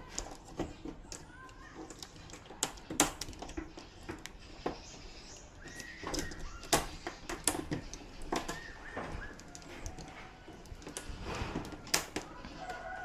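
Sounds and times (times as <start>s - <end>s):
chicken calling: 12.3s - 13.0s.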